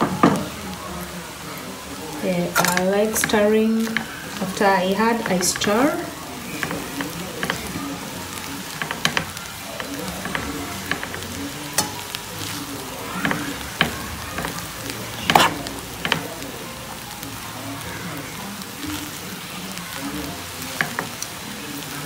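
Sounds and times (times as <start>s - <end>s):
rice sizzling in a frying pan: 0.0s - 22.0s
spatula scraping and tapping pan: 2.5s - 7.9s, 8.6s - 16.4s, 20.8s - 21.3s.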